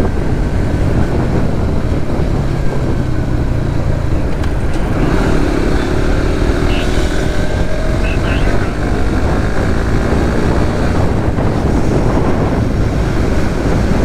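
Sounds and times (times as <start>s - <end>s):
motorcycle engine running: 0.0s - 14.0s
wind and road noise: 0.0s - 14.0s
another engine: 3.2s - 12.4s.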